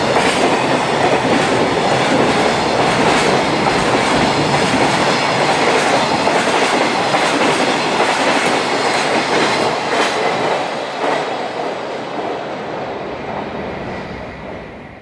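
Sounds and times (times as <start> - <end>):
train wheels clattering over rail joints: 0.0 - 11.3.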